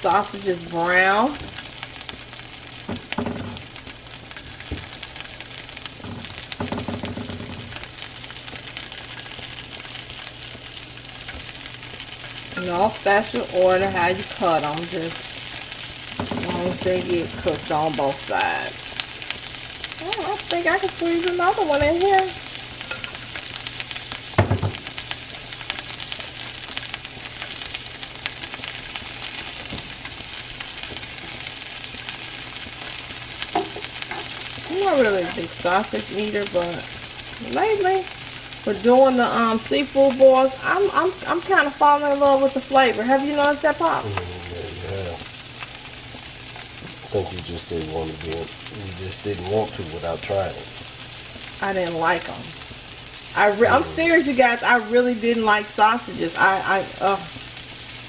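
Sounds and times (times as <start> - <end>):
sausages sizzling in a pan: 0.0 - 58.0
knocks: 2.9 - 3.6, 6.0 - 7.8, 16.2 - 17.0, 24.4 - 24.8.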